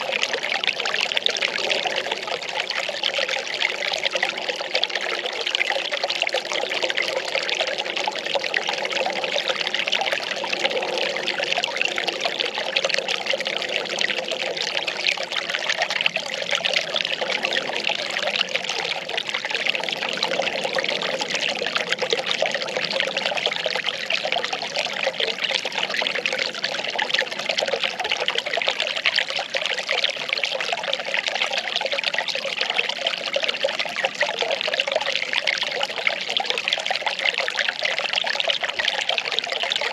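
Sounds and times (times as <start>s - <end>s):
water pouring and trickling: 0.0s - 39.9s.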